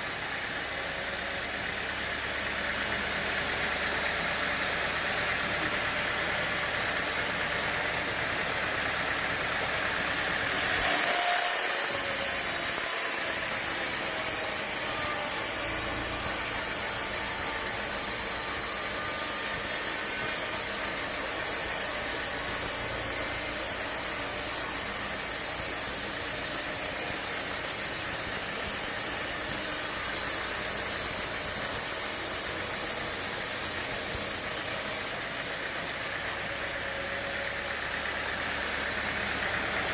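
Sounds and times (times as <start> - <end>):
sawmill machinery running: 0.0 - 39.9
loud hiss: 10.4 - 35.2.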